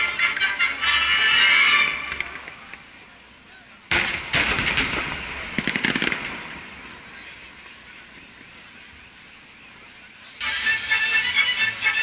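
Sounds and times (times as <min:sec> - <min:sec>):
crackling fireworks pops: 0:02.0 - 0:03.0, 0:03.9 - 0:09.5
fireworks bangs: 0:03.9 - 0:09.2.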